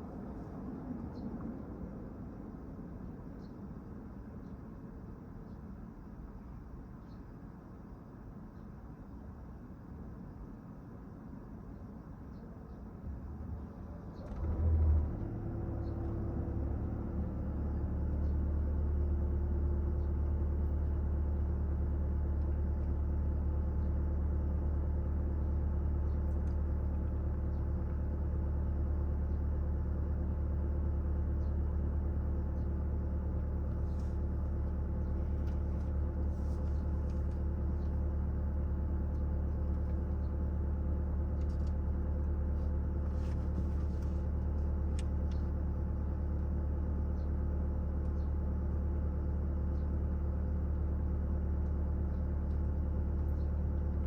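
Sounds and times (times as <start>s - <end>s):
car engine starting and idling: 13.2s - 54.0s.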